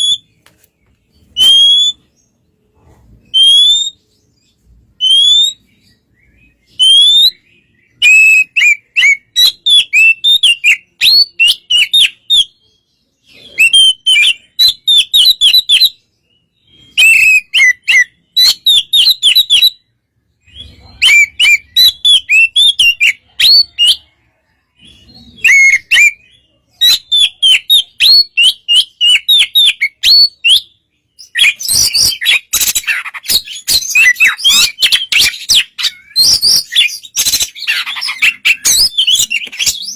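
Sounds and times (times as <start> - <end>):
bird singing whistled notes: 0.0 - 0.4, 1.1 - 2.5, 3.2 - 39.9
bird chattering: 31.3 - 39.9.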